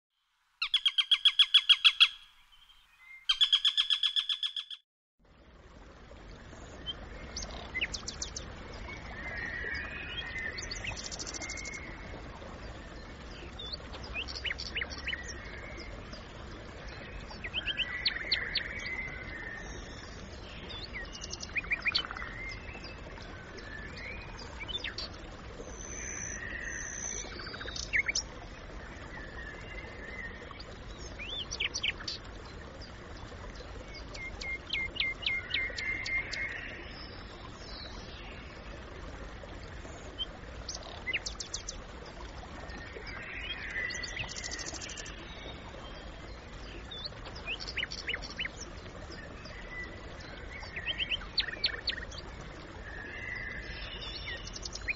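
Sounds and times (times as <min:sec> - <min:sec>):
small birds chirping: 0:00.6 - 0:04.8.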